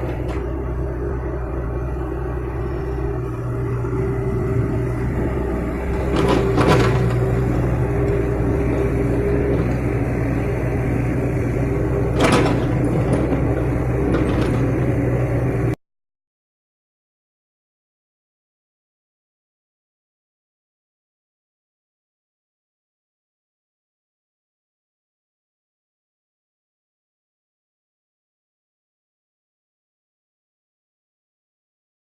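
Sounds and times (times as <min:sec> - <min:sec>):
excavator diesel engine running: 0:00.0 - 0:15.8.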